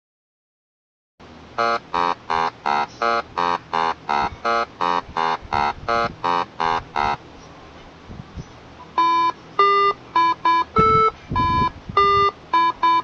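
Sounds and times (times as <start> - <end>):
short buzzy pitched note: 1.6 - 7.2.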